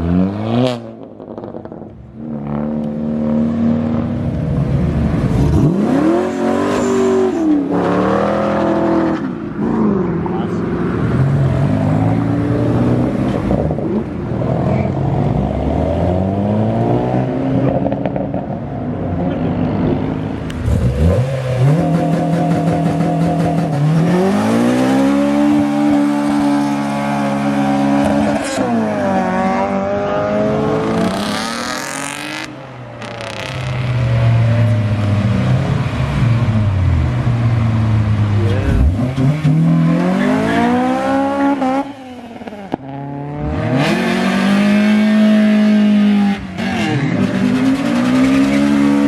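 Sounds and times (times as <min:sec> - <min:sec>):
car engines revving: 0:00.0 - 0:49.0.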